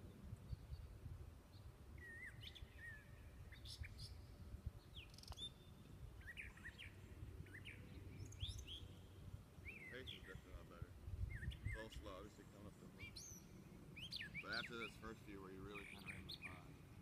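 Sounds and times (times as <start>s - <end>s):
faint birds chirping: 0.0s - 17.0s
faint click: 5.2s - 5.5s.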